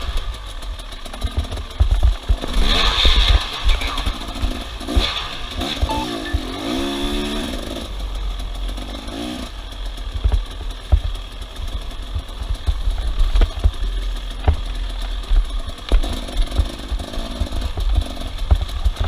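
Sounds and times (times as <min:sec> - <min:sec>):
vehicle engine revving: 0:02.4 - 0:09.6.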